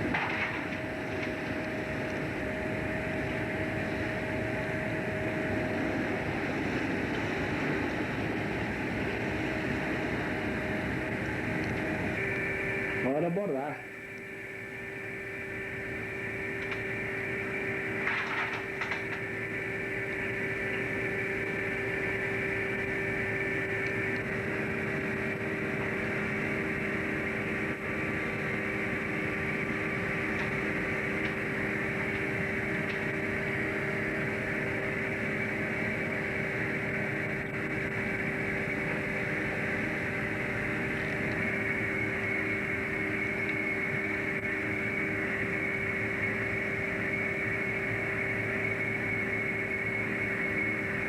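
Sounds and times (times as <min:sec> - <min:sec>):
boat engine droning: 0:00.0 - 0:51.0.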